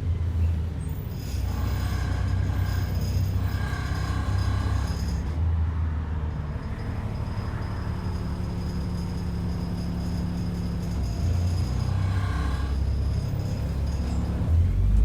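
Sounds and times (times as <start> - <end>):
bus diesel engine hum: 0.0 - 15.0.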